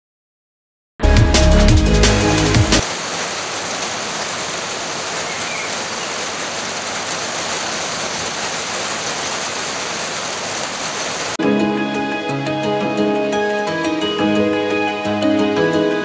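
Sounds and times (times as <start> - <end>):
rain falling on stone slabs: 2.0 - 11.4.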